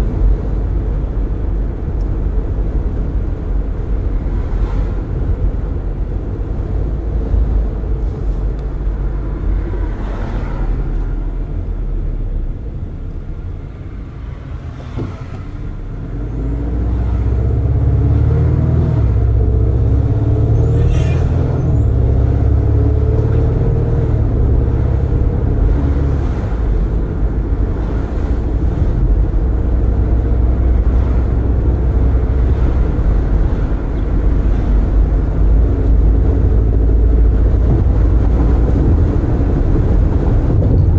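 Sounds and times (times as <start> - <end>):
car engine: 0.0 - 40.9
traffic: 0.0 - 40.9
wind: 0.0 - 40.9
tyres rumbling: 13.5 - 40.9.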